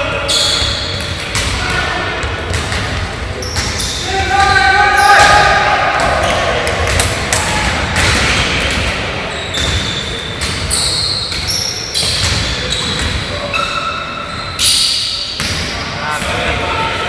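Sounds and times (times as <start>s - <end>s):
sneaker squeaks: 0.0s - 1.8s, 2.5s - 6.5s, 8.0s - 16.3s
basketball bouncing on court: 0.3s - 13.4s.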